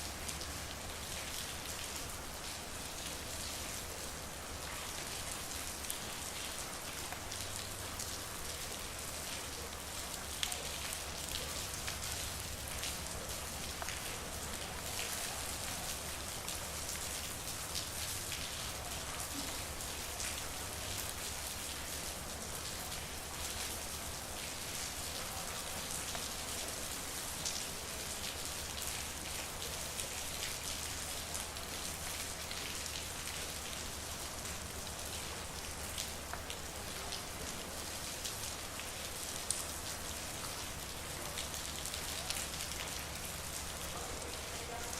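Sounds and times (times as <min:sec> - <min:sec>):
steady rain falling: 0:00.0 - 0:44.9
raindrops ticking: 0:10.4 - 0:15.1.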